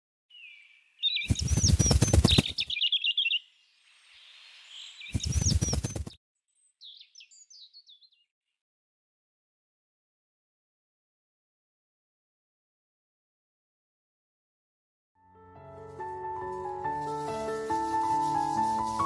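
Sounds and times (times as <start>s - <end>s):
high bird chirps: 0.3s - 8.3s
bird wings flapping: 1.2s - 2.8s, 5.1s - 6.2s.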